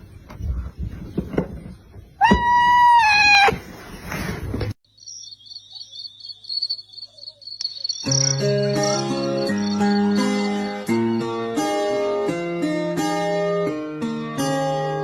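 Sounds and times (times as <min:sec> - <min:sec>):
high-pitched chirping trill: 0:04.9 - 0:10.9
plucked-string music: 0:08.3 - 0:15.0.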